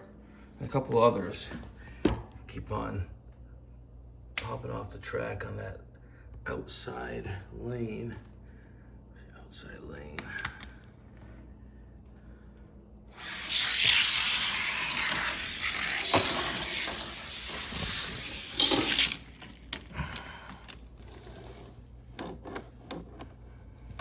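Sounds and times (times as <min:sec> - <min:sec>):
plastic track scraping: 0:13.2 - 0:19.9.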